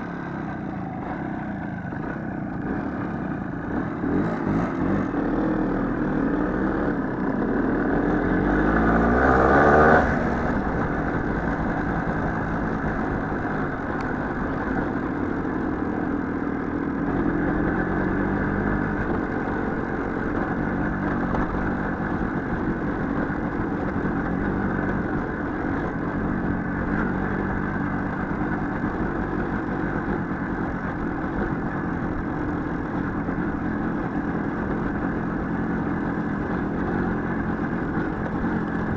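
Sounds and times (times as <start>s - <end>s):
small motorcycle engine revving: 0.0s - 16.3s.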